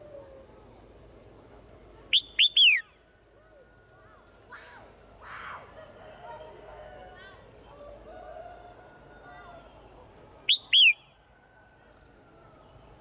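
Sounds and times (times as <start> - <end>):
sharp bird chirps: 2.1 - 3.0, 10.5 - 11.1.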